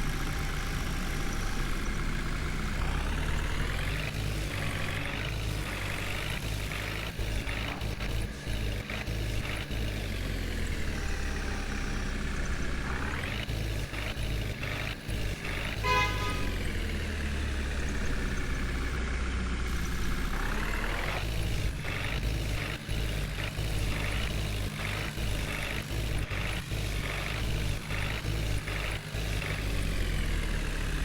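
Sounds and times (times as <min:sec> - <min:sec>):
diesel engine revving: 0:00.0 - 0:31.0
vehicle horn: 0:15.5 - 0:17.0.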